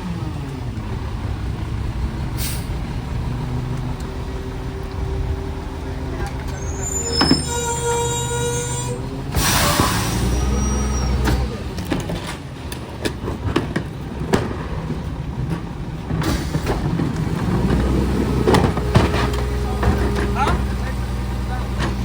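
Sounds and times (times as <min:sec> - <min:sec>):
garbage truck engine running: 0:00.0 - 0:22.0
metal clanks and bangs: 0:06.2 - 0:22.0.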